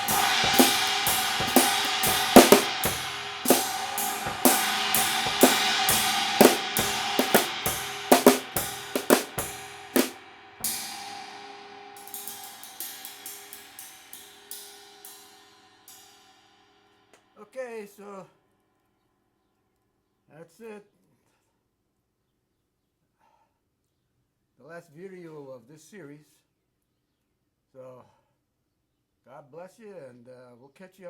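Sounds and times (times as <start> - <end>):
drum kit played with rods: 0.0 - 15.4
cymbal crash ringing out: 0.0 - 16.5.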